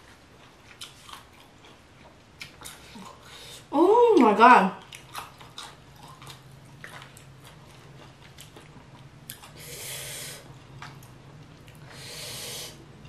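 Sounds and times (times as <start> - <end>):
wet chewing with small clicks: 0.4 - 3.2, 4.2 - 9.6, 10.5 - 11.9
airy hiss: 11.9 - 12.8.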